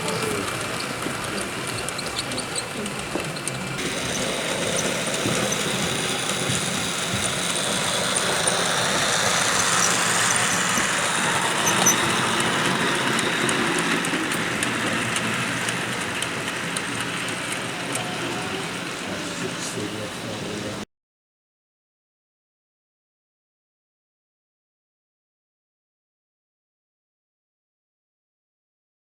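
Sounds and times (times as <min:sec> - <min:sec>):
model train running: 0:00.0 - 0:20.8.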